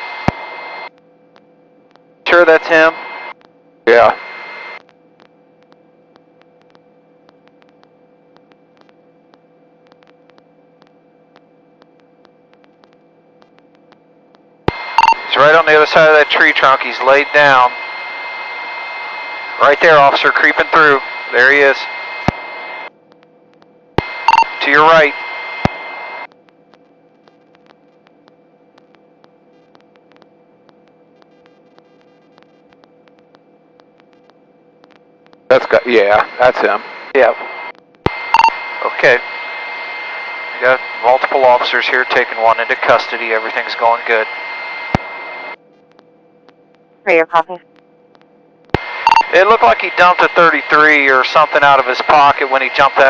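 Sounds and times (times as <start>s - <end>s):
electrical hum and hiss: 0.0s - 53.0s
radio static clicks: 0.0s - 53.0s
faint ticks and clicks: 0.9s - 2.1s, 3.3s - 3.6s, 4.8s - 14.8s, 25.6s - 35.5s, 47.6s - 48.8s.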